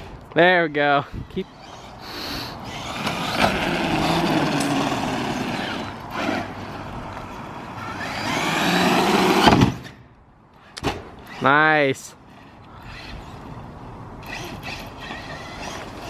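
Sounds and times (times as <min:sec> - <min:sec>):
electric motor whining: 0:01.4 - 0:09.5, 0:14.2 - 0:16.0.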